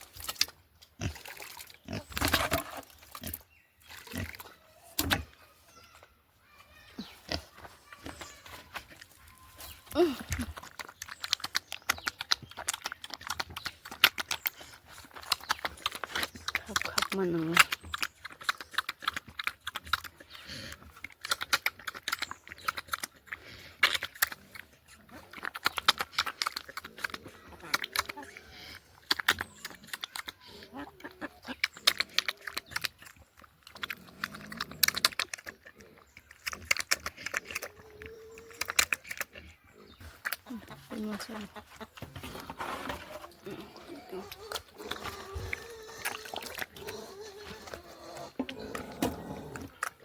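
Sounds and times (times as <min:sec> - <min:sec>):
pigs grunting: 0:22.9 - 0:50.0
pig grunt: 0:43.0 - 0:50.0.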